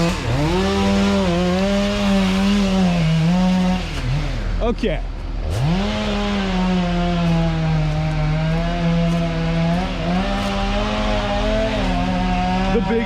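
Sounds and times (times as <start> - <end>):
chainsaw revving: 0.0 - 4.7, 5.4 - 13.0.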